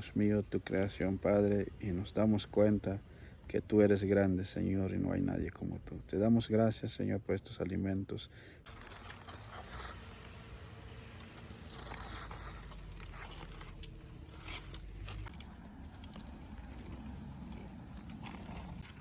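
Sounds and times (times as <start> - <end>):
small crunches and clicks: 8.7 - 10.4, 11.2 - 19.0.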